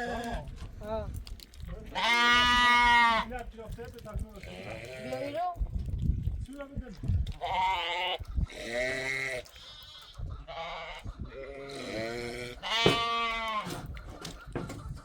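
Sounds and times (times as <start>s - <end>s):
livestock bleating: 2.0s - 3.3s, 7.4s - 13.7s.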